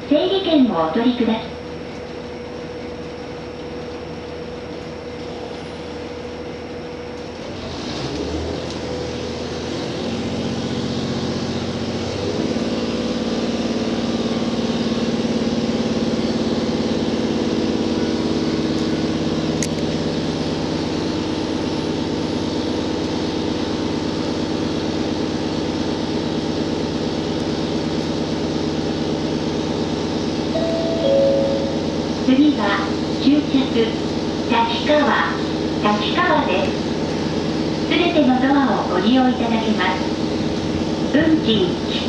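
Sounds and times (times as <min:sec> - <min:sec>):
train diesel engine: 0:00.0 - 0:42.0
humming tones rising: 0:30.6 - 0:32.5.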